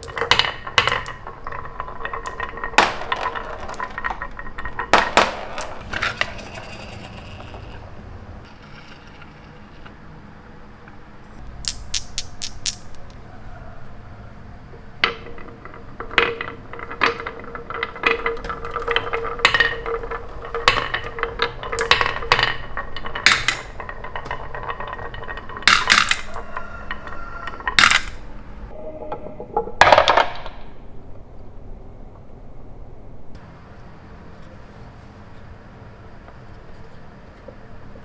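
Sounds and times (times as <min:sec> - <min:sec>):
small hard objects clinking: 0:00.0 - 0:07.8, 0:11.4 - 0:13.8, 0:14.8 - 0:28.7.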